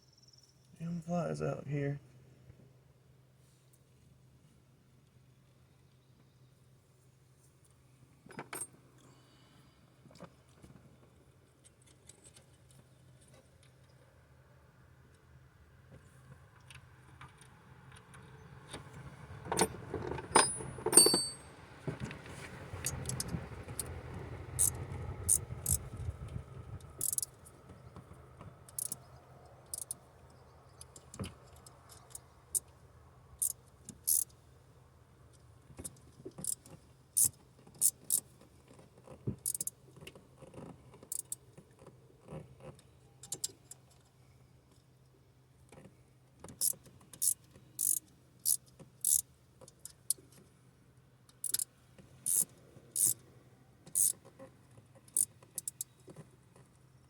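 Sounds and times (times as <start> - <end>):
metal tools clinking: 20.4 - 21.5.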